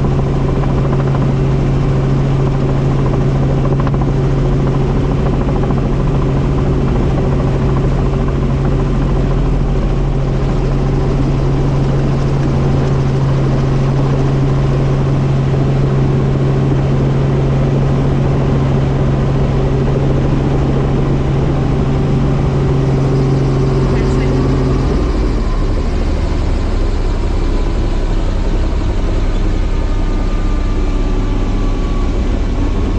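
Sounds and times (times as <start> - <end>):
helicopter rotor and engine drone: 0.0 - 32.9.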